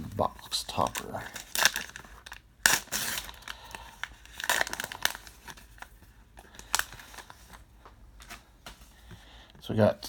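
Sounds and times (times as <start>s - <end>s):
card pack wrapper tearing: 0.4s - 7.6s.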